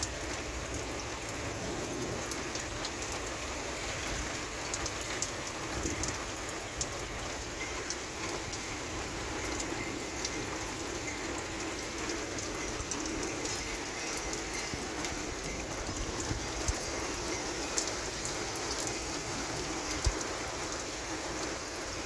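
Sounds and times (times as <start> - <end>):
rain falling: 0.0 - 22.0
drops ticking on hard surface: 4.2 - 21.6.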